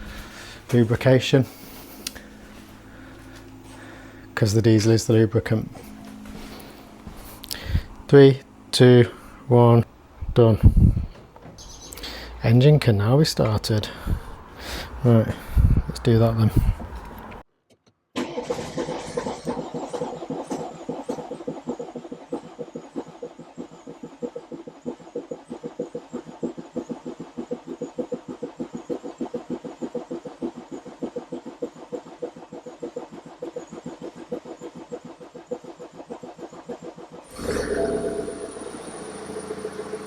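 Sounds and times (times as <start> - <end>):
diesel engine cranking and starting: 0.0 - 8.3, 18.2 - 22.6, 37.0 - 40.0.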